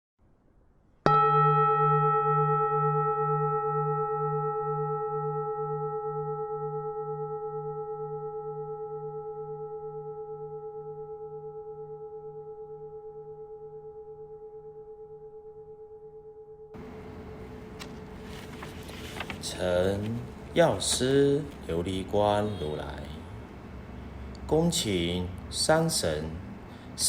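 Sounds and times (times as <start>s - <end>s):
singing bowl ringing: 1.1s - 16.8s.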